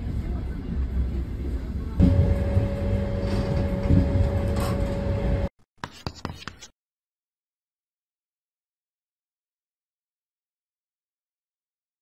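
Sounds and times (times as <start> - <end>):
train running rumble: 0.0 - 5.4.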